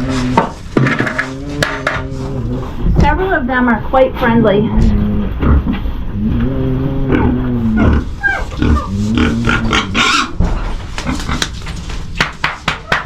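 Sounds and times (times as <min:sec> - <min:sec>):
pigs calling: 0:00.0 - 0:03.4, 0:04.2 - 0:11.6
rustling noise: 0:00.0 - 0:12.4.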